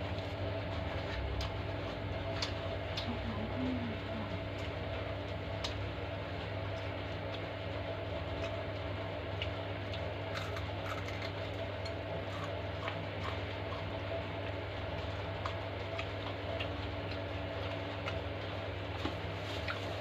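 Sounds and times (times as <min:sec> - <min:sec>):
steady low hum: 0:00.0 - 0:20.0
chewing food close up: 0:01.0 - 0:03.2, 0:08.3 - 0:19.9
mouth clicks and crunches: 0:02.2 - 0:03.1, 0:09.3 - 0:18.2.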